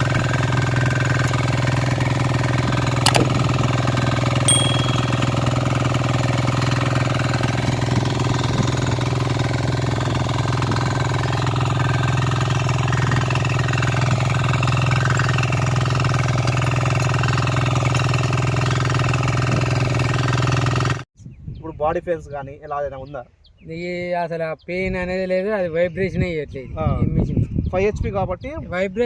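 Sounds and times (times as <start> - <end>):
diesel engine running: 0.0 - 4.5, 5.2 - 21.0.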